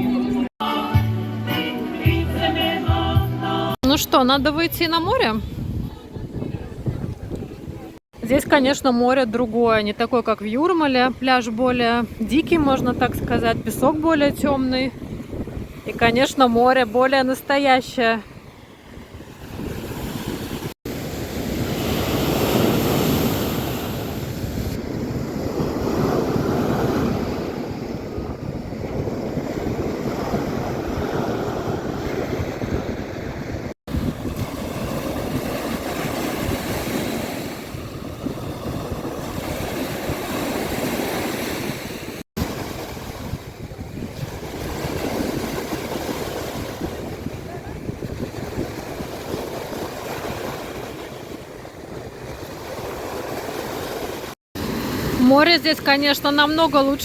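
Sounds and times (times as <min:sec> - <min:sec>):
wind on microphone: 0:03.8 - 0:08.7, 0:10.8 - 0:16.9, 0:18.0 - 0:55.2
sea surf washing onto beach: 0:12.1 - 0:57.0.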